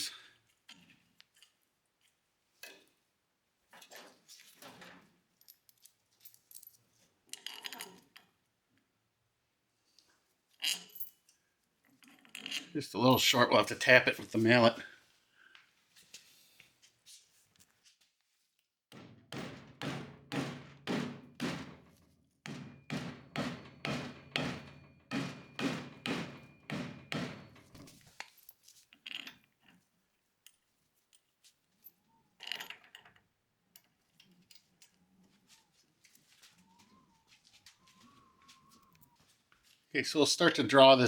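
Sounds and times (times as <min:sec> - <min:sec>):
mallet striking metal cover: 0:19.0 - 0:21.8, 0:22.5 - 0:27.7.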